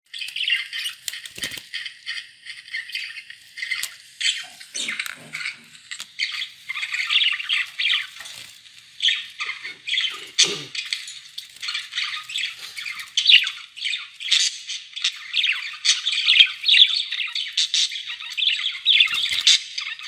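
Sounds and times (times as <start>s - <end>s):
budgerigars chattering: 0.1s - 20.0s.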